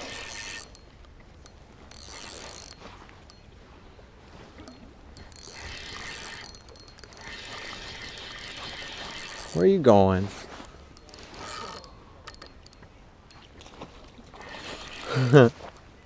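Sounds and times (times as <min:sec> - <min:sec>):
fishing reel whirring: 0:00.0 - 0:03.5, 0:04.7 - 0:13.5, 0:14.3 - 0:15.8
reel clicking: 0:00.0 - 0:03.6, 0:04.6 - 0:15.9.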